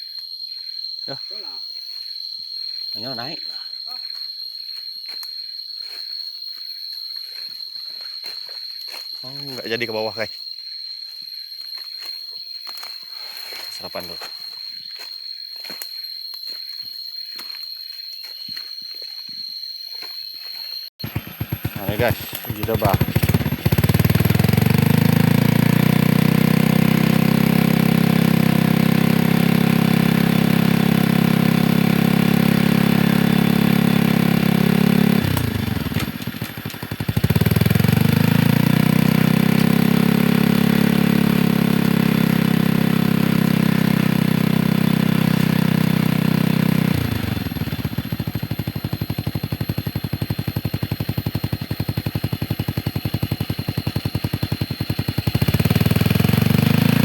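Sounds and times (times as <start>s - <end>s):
motorcycle engine revving: 21.0s - 57.0s.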